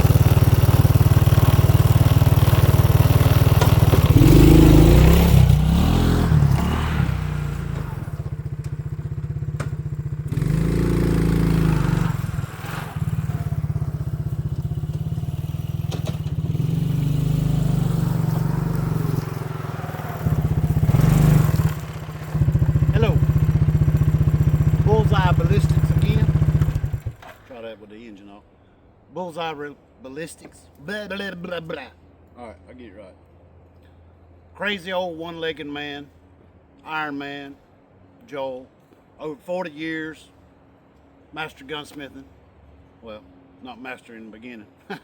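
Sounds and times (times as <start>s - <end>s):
engine running: 0.0s - 27.5s.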